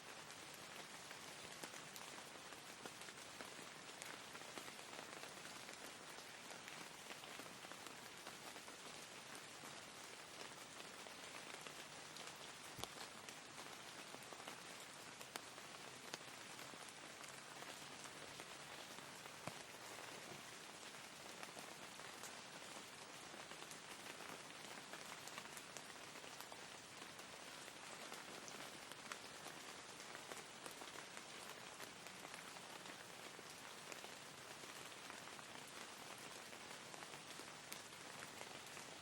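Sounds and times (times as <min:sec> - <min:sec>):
steady rain: 0:00.0 - 0:39.0
raindrops ticking: 0:11.2 - 0:32.6.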